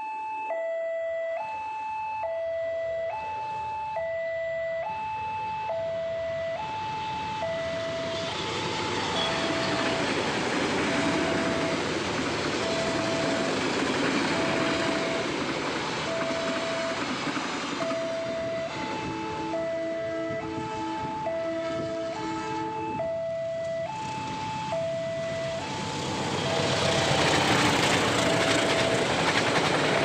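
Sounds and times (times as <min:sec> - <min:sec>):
two-tone crossing alarm: 0:00.0 - 0:30.0
train rumble and wheel noise: 0:07.6 - 0:30.0.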